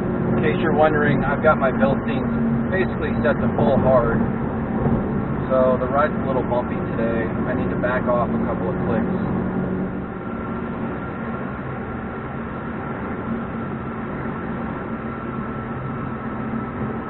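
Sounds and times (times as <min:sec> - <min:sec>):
faint low engine hum: 0:00.0 - 0:17.0
wind noise in car: 0:00.0 - 0:17.0.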